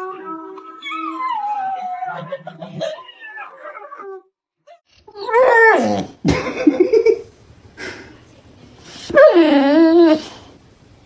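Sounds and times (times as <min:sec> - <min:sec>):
dog howling: 0:00.0 - 0:04.3.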